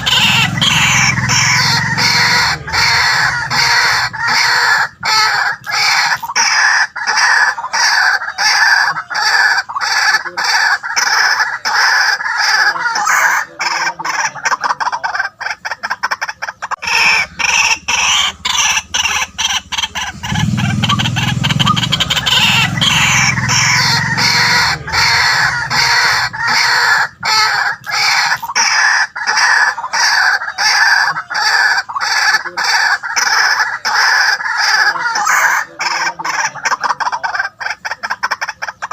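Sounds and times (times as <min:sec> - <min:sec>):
deeper sound: 0:00.0 - 0:06.4, 0:16.8 - 0:28.5
bird harsh repeated calls: 0:00.0 - 0:38.9.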